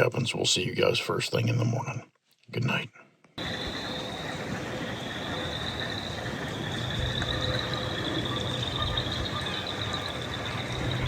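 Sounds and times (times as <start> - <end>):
frogs trilling chorus: 3.4 - 11.0
steady rain: 3.4 - 11.0.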